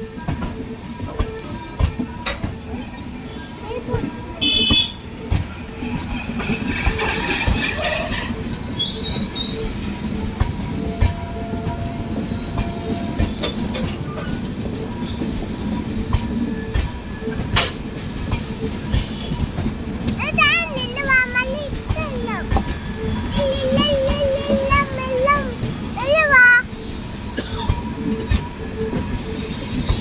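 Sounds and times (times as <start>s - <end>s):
train wheels rumbling on rail: 0.0s - 30.0s
wheels clicking over rail joints: 3.6s - 26.8s.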